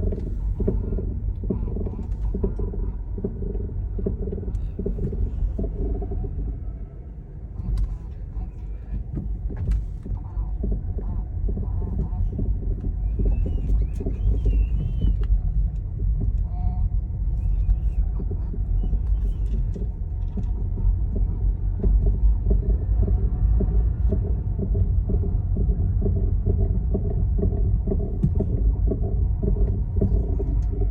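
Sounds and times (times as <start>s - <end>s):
car driving rumble: 0.0s - 30.9s
knocking underneath car: 18.2s - 30.9s.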